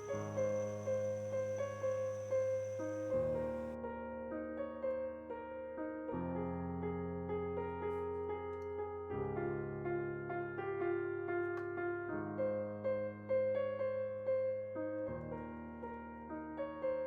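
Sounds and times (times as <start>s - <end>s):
slow solo piano: 0.0s - 17.0s.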